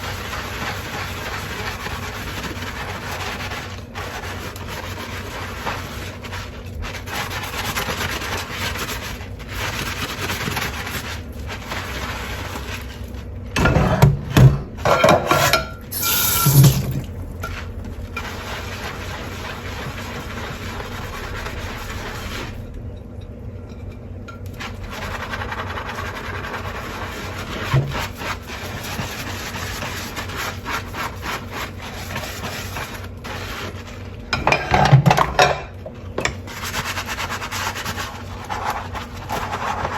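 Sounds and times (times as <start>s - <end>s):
scrubbing dishes: 0.0s - 22.6s, 23.6s - 39.9s
dishware clattering: 13.6s - 17.0s, 34.4s - 35.8s.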